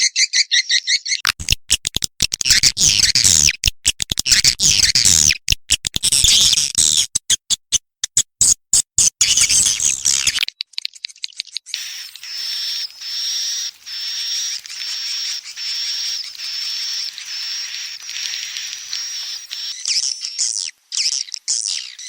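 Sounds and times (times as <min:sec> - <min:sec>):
scattered clicks: 0:01.3 - 0:09.1, 0:13.7 - 0:19.8
swiftlet chattering: 0:11.8 - 0:20.4
high buzzing twitters: 0:11.8 - 0:22.0.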